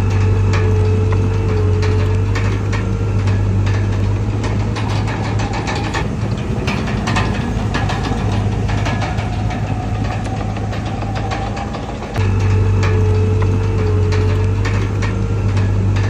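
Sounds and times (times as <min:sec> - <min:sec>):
bulldozer diesel engine running: 0:00.0 - 0:16.0
faint whine: 0:00.0 - 0:16.0
metallic clicks and clanks: 0:00.0 - 0:16.0.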